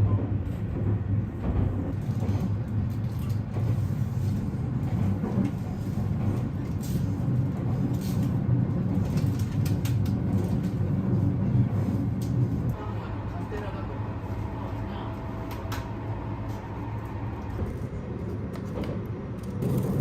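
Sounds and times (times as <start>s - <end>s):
train low rumble: 0.0s - 20.0s.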